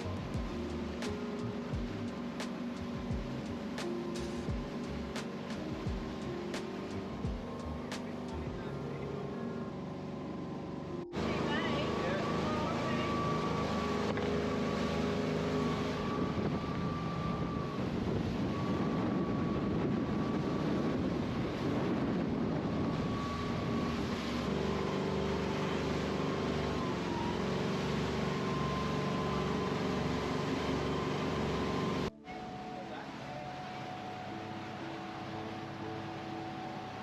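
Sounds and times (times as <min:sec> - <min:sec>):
motorboat engine drone: 0:00.0 - 0:37.0
rushing water and air: 0:00.0 - 0:37.0.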